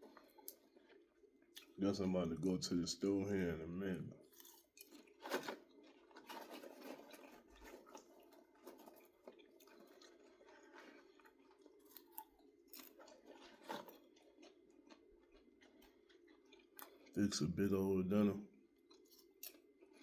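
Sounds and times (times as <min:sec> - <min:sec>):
person chewing popcorn: 0:00.0 - 0:01.8, 0:04.2 - 0:17.6, 0:18.5 - 0:20.0.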